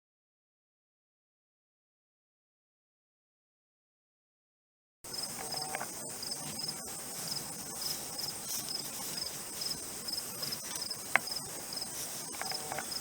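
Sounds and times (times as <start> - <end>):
insects trilling and chirping: 5.1 - 13.0.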